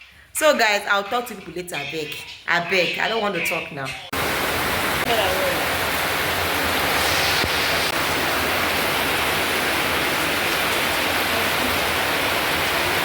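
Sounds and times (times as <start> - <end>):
heavy rain falling: 4.1 - 13.0.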